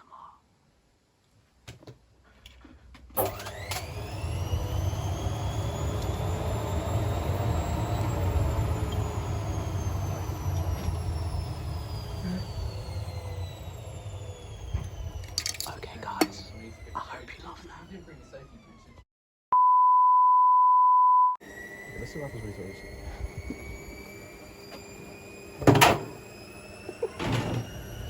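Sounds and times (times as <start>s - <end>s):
washing machine drum spinning: 25.3s - 28.0s
washing machine click: 25.6s - 26.3s.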